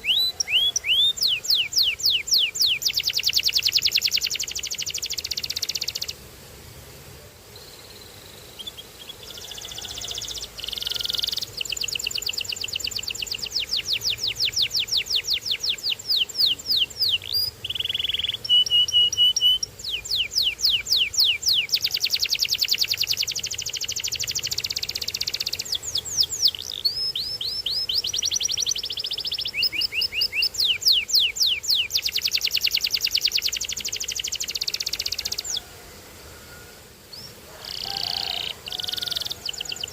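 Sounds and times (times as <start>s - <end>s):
canary singing trills: 0.0s - 6.2s, 7.6s - 35.7s, 37.1s - 39.9s.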